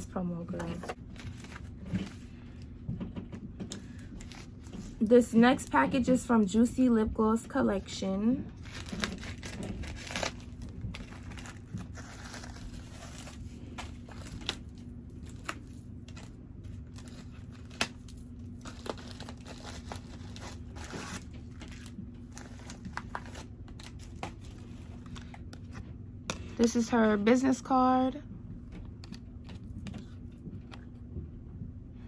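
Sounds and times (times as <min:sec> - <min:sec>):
wrapping crinkling and tearing: 0:00.7 - 0:02.3, 0:08.5 - 0:25.8.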